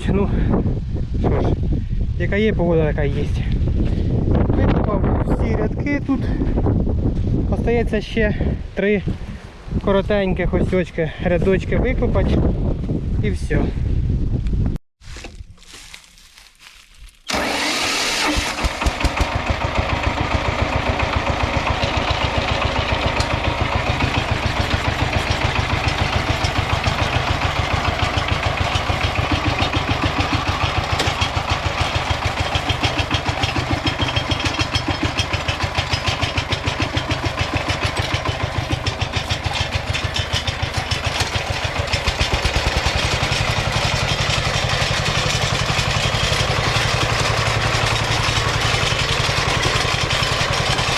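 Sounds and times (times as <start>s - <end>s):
diesel engine chugging: 17.3s - 50.9s.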